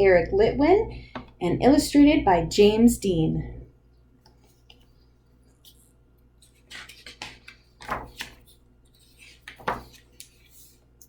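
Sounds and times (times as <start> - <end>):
clicks and rustles of book handling: 4.2 - 11.0
book pages turning: 4.3 - 11.0.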